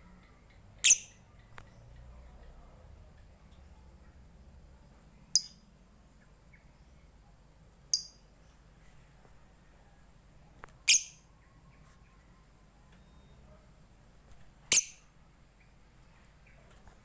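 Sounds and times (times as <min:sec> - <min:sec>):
lovebird shrill chirps: 0:00.8 - 0:01.2, 0:05.4 - 0:05.6, 0:10.8 - 0:11.3, 0:14.7 - 0:15.1.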